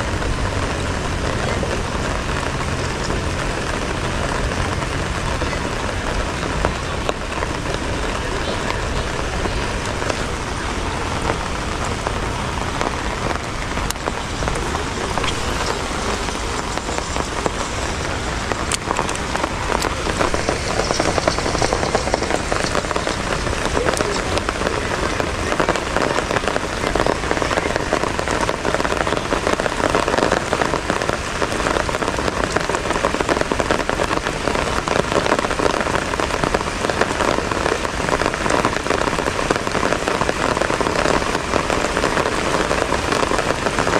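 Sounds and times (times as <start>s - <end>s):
heavy rain pouring: 0.0s - 43.9s.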